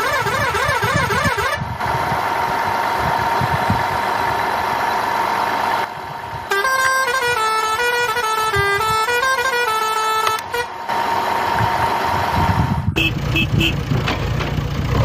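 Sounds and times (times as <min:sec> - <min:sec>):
warbling toy siren: 0:00.0 - 0:01.6.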